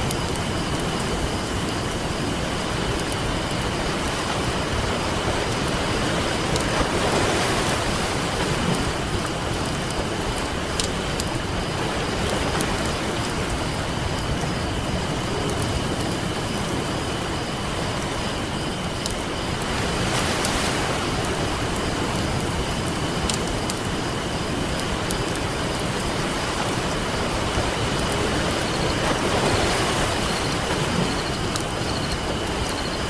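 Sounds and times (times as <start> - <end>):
campfire crackling and popping: 0.0 - 4.2, 8.5 - 17.6, 21.2 - 26.0, 30.2 - 33.0
ocean surf washing: 0.0 - 33.0.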